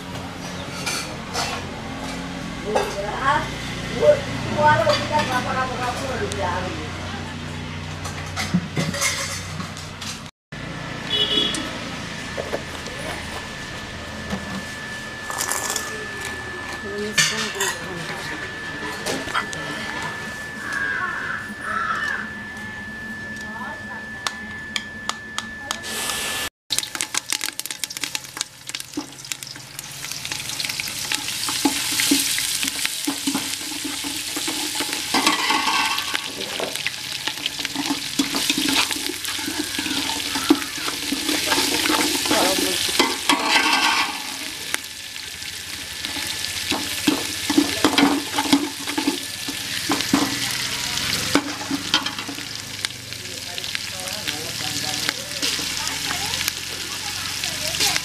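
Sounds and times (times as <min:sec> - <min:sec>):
metal ladle scraping a pot: 0:08.4 - 0:09.8, 0:29.5 - 0:44.5
spices sizzling in hot oil: 0:25.8 - 0:58.0.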